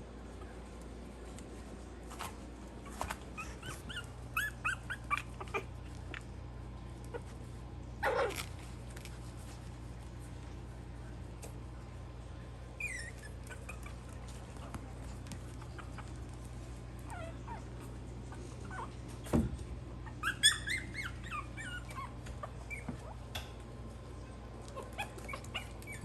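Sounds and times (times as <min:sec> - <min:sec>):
clicks of paws: 0:00.4 - 0:06.4, 0:11.3 - 0:11.6, 0:13.0 - 0:19.7, 0:20.4 - 0:26.0
puppies whimpering and yipping: 0:02.8 - 0:06.2, 0:08.0 - 0:08.6, 0:12.7 - 0:19.4, 0:20.0 - 0:23.5, 0:24.6 - 0:26.0
puppy rough cry: 0:08.0 - 0:08.6.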